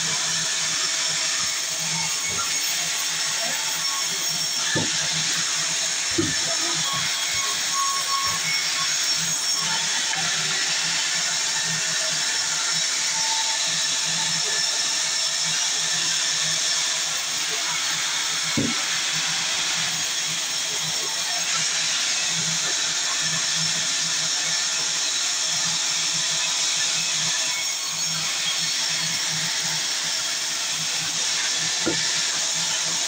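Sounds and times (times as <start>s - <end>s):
sawmill saw cutting wood: 0.0s - 33.0s
short knock: 18.6s - 18.8s.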